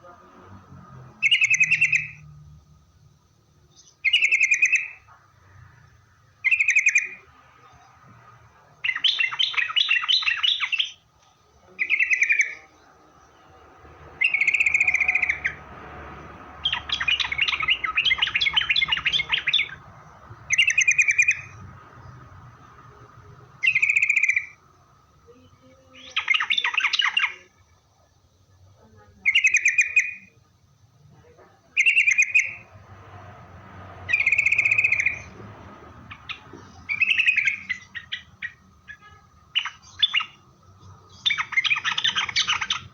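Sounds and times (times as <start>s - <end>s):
bird chattering: 1.1s - 2.2s, 3.7s - 5.2s, 6.4s - 7.9s, 8.7s - 12.8s, 13.8s - 24.6s, 25.3s - 27.6s, 28.8s - 30.4s, 31.2s - 32.7s, 34.0s - 42.9s
bird singing bubbly phrases: 1.2s - 2.5s, 3.7s - 5.1s, 6.4s - 7.9s, 8.8s - 11.0s, 11.6s - 13.0s, 14.0s - 15.8s, 16.6s - 27.8s, 29.2s - 30.4s, 31.7s - 32.7s, 34.1s - 35.3s, 36.0s - 42.9s.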